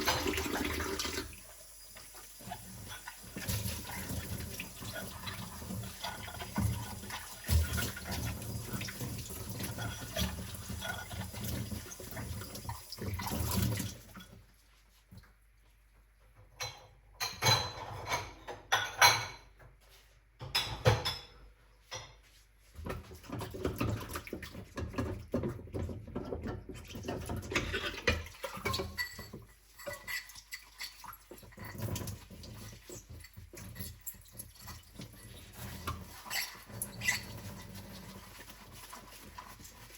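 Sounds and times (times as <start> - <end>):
dishes knocking and clinking: 16.4 - 19.8, 20.4 - 30.4.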